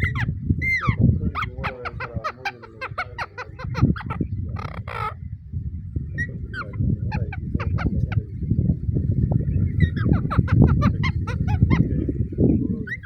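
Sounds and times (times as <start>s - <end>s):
harsh parakeet call: 0.0s - 5.2s, 6.2s - 8.2s, 9.7s - 11.9s
parakeets chirping: 0.0s - 5.2s, 6.1s - 8.4s, 9.3s - 12.0s.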